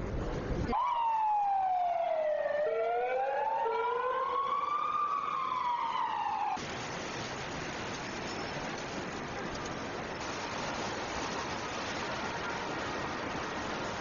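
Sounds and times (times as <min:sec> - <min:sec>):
emergency vehicle siren wailing: 0:00.7 - 0:06.6
steady rushing noise: 0:06.6 - 0:14.0.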